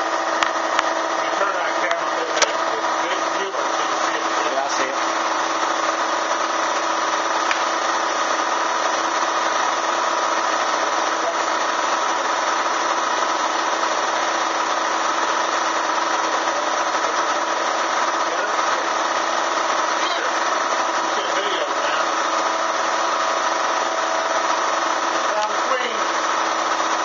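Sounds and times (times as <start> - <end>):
vacuum motor running: 0.0 - 27.0.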